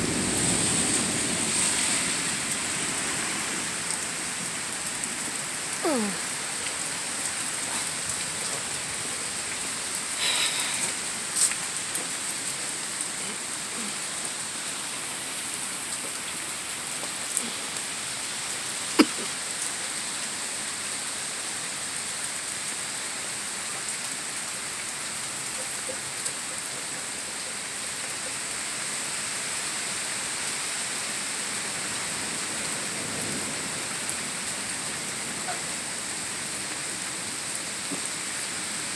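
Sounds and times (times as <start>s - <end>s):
steady rain splashing: 0.0s - 38.9s.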